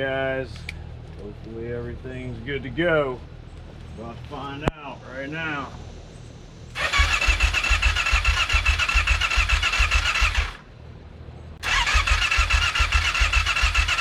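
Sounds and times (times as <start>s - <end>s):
electric starter cranking engine: 6.8s - 10.6s, 11.6s - 14.0s.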